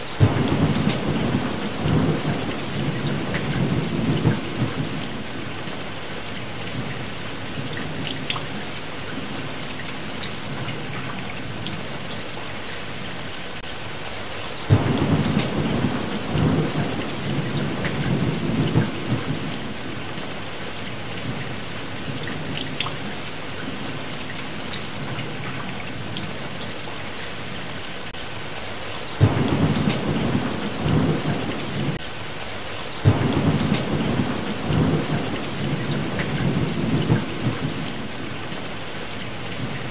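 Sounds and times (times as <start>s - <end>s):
steady rain: 0.0s - 39.9s
thunder rolling: 0.2s - 5.3s, 14.7s - 19.8s, 29.2s - 32.0s, 33.0s - 38.1s.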